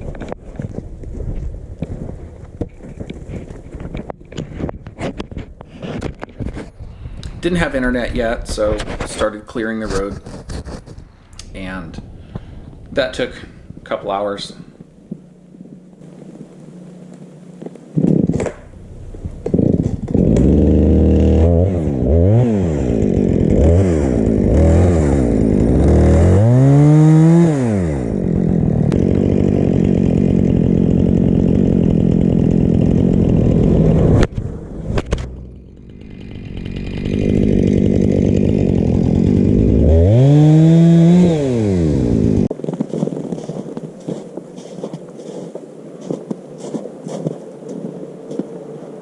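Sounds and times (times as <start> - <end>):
chainsaw revving: 15.3 - 42.5.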